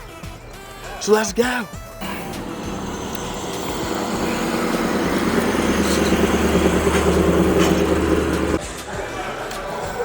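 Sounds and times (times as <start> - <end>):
vehicle engine running: 2.0 - 8.6.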